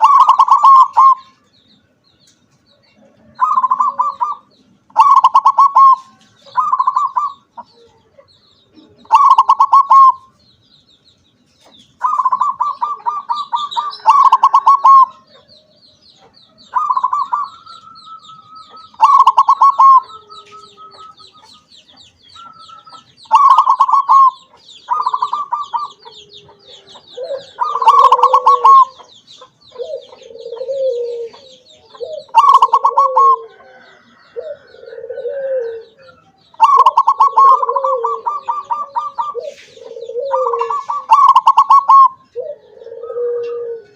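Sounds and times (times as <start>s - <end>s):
dove cooing: 0.0s - 1.4s, 3.1s - 10.4s, 12.0s - 43.9s.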